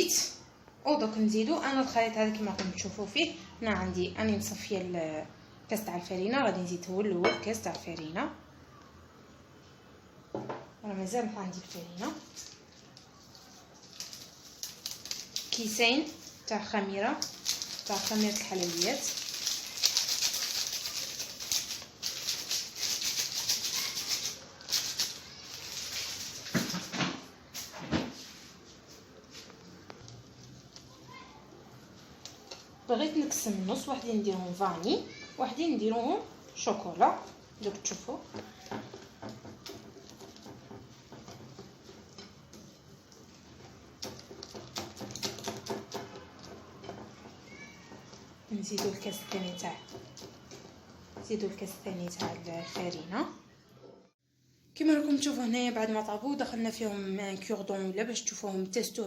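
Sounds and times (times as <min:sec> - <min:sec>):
utensil mixing in bowl: 0:17.1 - 0:26.8, 0:36.3 - 0:52.9.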